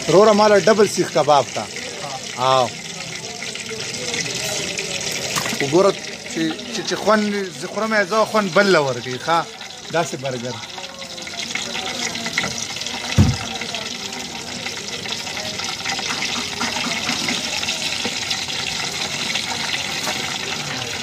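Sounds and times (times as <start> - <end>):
hot oil sizzling and crackling: 0.0 - 21.0
low thump: 13.2 - 13.5.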